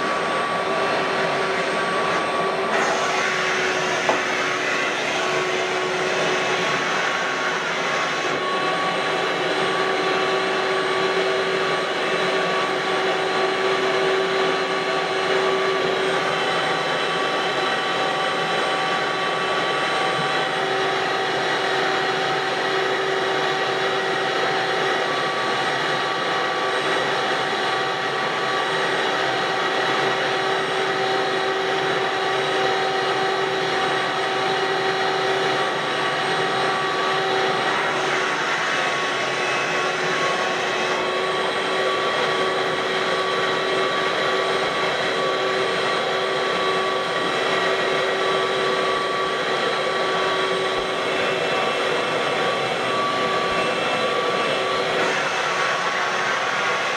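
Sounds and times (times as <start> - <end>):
shop vacuum running: 0.0 - 56.9.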